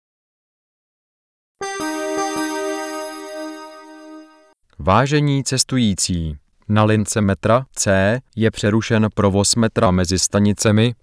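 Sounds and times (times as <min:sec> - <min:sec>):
electronic announcement chime: 0:01.6 - 0:04.6.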